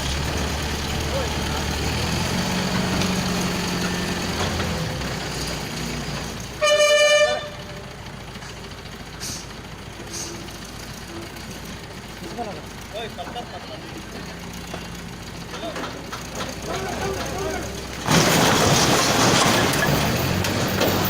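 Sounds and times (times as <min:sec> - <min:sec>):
heavy engine humming: 0:00.0 - 0:21.0
loud horn blast: 0:06.6 - 0:07.8.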